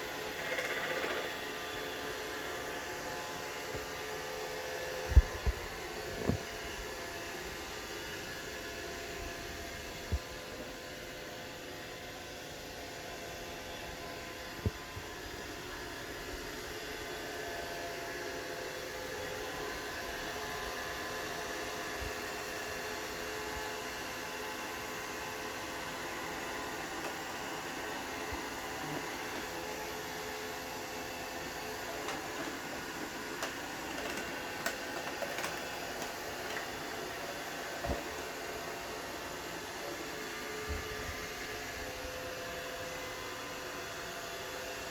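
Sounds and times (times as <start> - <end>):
robot vacuum whirring: 0.0 - 8.8, 24.4 - 44.9.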